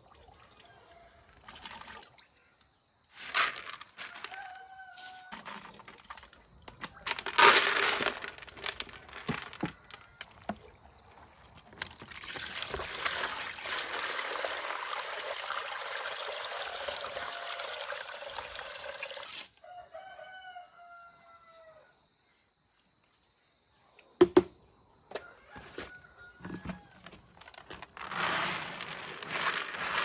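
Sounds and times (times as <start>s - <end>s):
rooster crowing: 4.1s - 5.5s, 19.6s - 22.0s, 25.1s - 27.1s.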